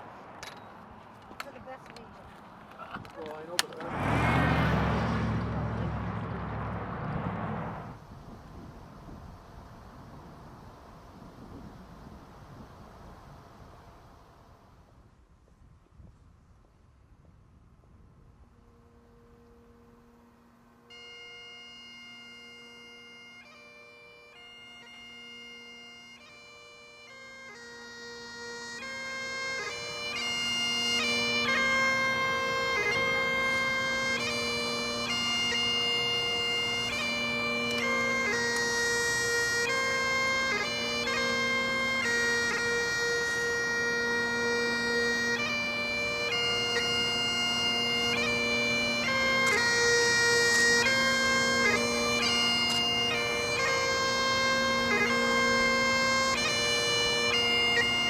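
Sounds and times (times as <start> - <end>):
bagpipes playing slow tune: 18.6 - 58.0.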